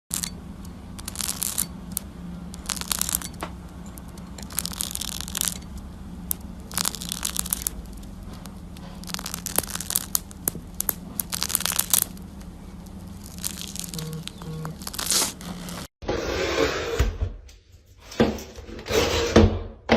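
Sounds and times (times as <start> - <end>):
steady low hum: 0.1 - 15.9
scratchy rustling crinkling: 6.3 - 15.9.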